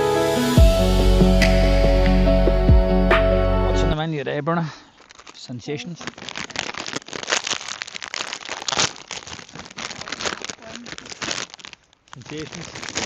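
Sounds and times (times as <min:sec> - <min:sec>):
plastic snack packets crinkling: 0:04.6 - 0:13.0.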